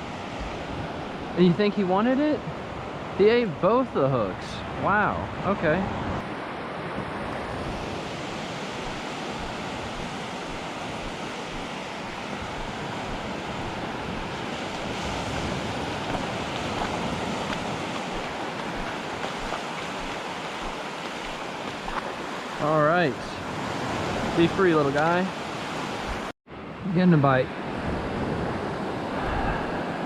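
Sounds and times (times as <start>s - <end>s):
ocean surf washing onto beach: 0.0s - 30.0s
wind on microphone: 4.8s - 22.0s, 27.8s - 30.0s.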